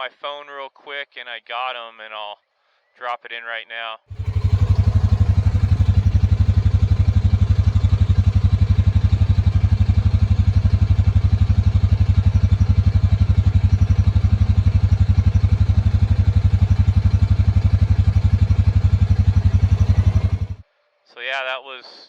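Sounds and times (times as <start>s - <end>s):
engine running with low throb: 4.1s - 20.6s.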